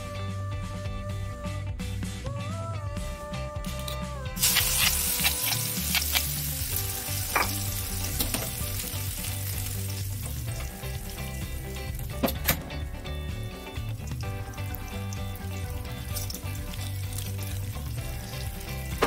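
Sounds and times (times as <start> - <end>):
food sizzling in hot oil: 4.4 - 19.0.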